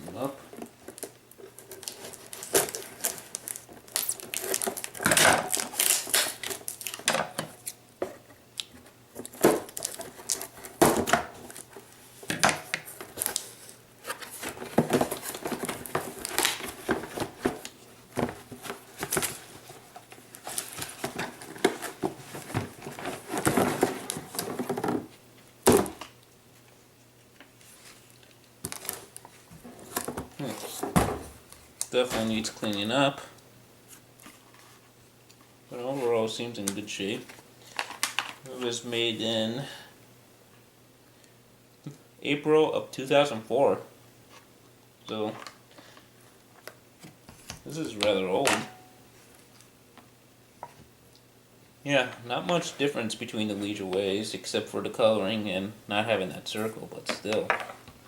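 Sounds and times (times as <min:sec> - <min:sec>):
packaging crinkling and tearing: 0:00.9 - 0:07.8, 0:09.2 - 0:10.8, 0:13.0 - 0:17.8.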